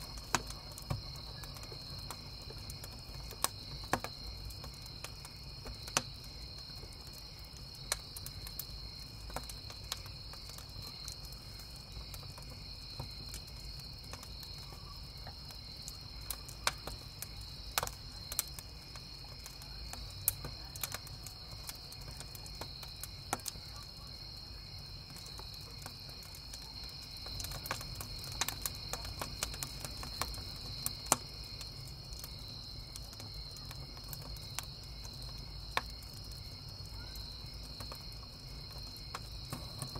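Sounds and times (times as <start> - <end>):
campfire pops and crackles: 0.0 - 39.9
crickets chirping: 0.0 - 39.9.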